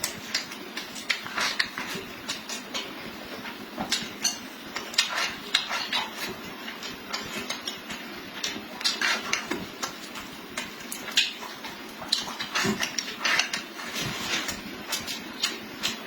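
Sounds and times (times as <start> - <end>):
chewing smacks and clicks: 3.9 - 16.0.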